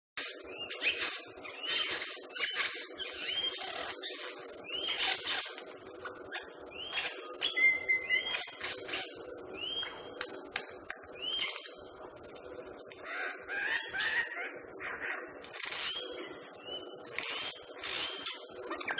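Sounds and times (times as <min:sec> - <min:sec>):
low background hum: 0:00.2 - 0:18.9
bird whistled calls: 0:00.5 - 0:05.5, 0:06.3 - 0:10.1, 0:11.2 - 0:11.7, 0:13.1 - 0:18.9
scattered clicks: 0:09.8 - 0:11.2.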